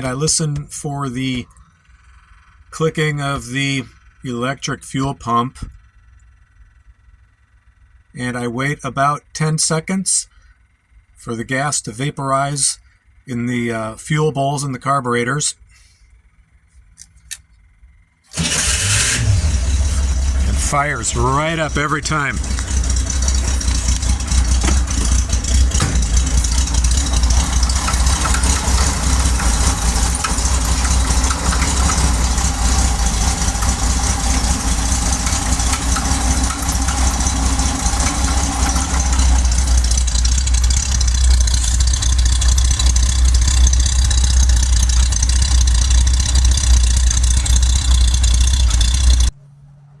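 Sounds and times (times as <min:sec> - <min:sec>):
car engine idling: 0:18.3 - 0:49.4.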